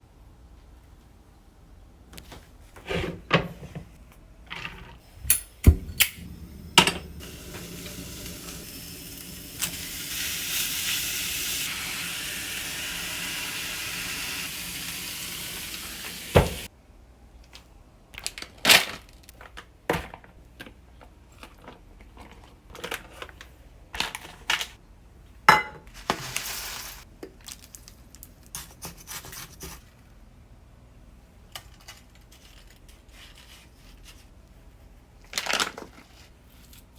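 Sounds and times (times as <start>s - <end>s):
cookware and utensils clinking: 4.6s - 8.6s, 25.5s - 26.2s
steady hiss: 5.0s - 16.7s.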